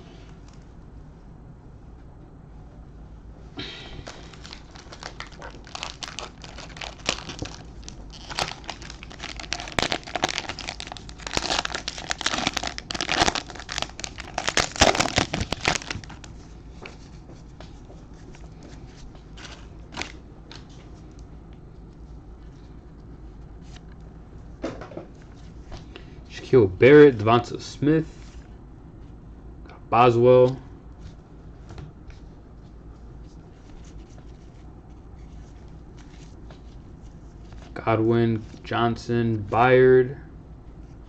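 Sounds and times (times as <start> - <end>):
plastic wrapper tearing and crinkling: 4.0 - 16.3.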